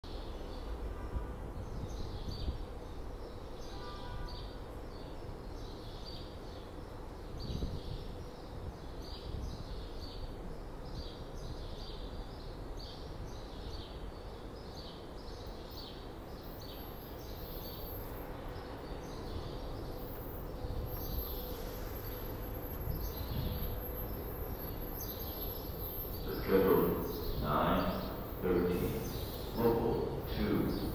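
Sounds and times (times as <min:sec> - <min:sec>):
steady low rumble: 0:18.4 - 0:30.9.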